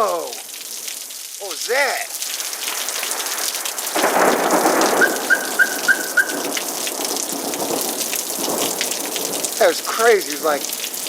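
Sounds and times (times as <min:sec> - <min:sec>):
heavy rain pouring: 0:00.0 - 0:11.0
thunder rumble: 0:02.4 - 0:09.6.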